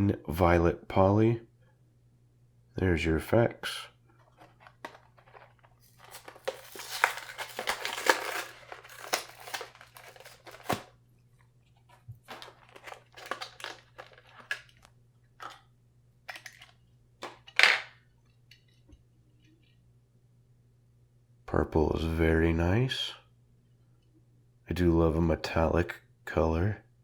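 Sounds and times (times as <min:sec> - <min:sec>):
packaging tearing and crinkling: 0:04.3 - 0:10.9, 0:12.2 - 0:14.8, 0:16.3 - 0:17.9.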